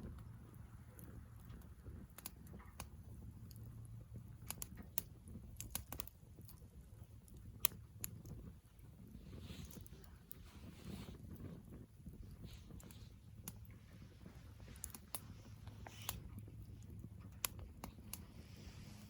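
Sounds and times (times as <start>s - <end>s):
campfire crackling and popping: 0.0s - 19.0s
low rumble of burning fire: 0.0s - 19.0s.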